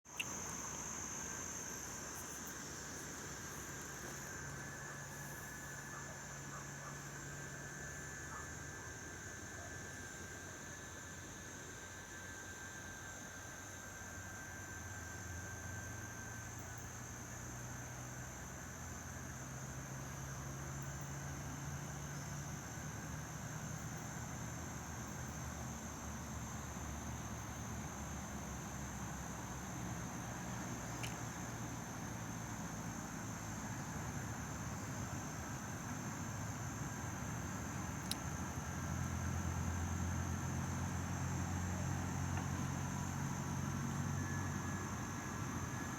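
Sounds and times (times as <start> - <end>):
engine hum: 28.3 - 45.9
faint clicks: 38.0 - 38.2.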